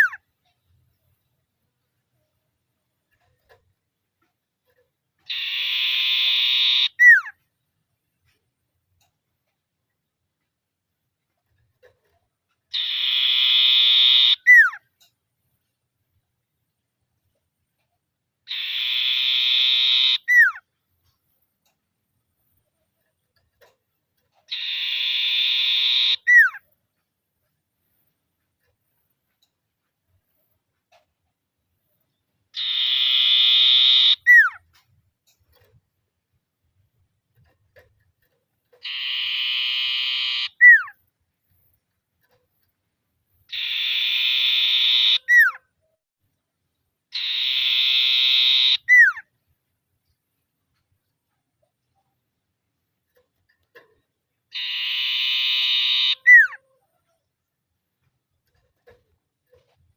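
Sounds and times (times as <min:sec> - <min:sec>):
bird trill call: 0:05.3 - 0:07.4, 0:12.7 - 0:14.8, 0:18.5 - 0:20.6, 0:24.5 - 0:26.6, 0:32.6 - 0:34.6, 0:38.8 - 0:41.0, 0:43.5 - 0:45.6, 0:47.1 - 0:49.3, 0:54.5 - 0:56.8
falling bird whistle: 0:18.5 - 0:20.6, 0:24.5 - 0:26.6, 0:32.6 - 0:34.6, 0:38.8 - 0:41.0, 0:47.1 - 0:49.2, 0:54.5 - 0:56.6
bird buzzing trill call: 0:54.6 - 0:56.6.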